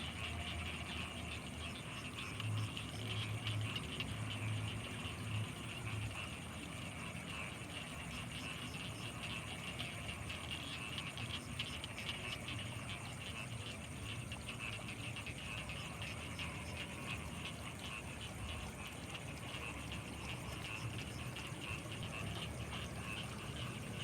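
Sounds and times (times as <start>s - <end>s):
frogs croaking and trilling: 0.0s - 24.0s.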